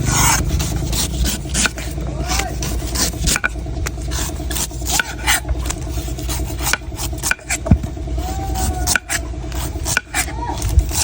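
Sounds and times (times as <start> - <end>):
knife chopping coconut: 0.0 - 11.0
steady low hum: 0.0 - 11.0.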